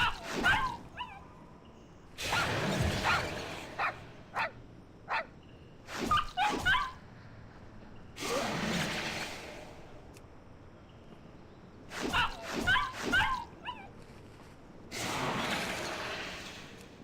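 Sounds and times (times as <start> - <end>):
small dog yipping and whimpering: 0.0 - 1.3, 6.0 - 7.0, 12.1 - 14.0.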